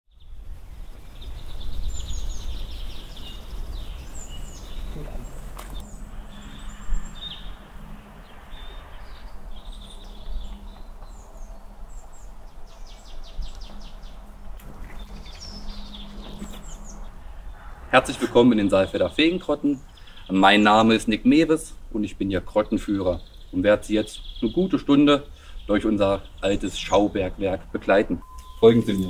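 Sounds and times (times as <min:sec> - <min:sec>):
small birds chirping and trilling: 0:00.1 - 0:29.0
steady low rumble: 0:00.3 - 0:22.5.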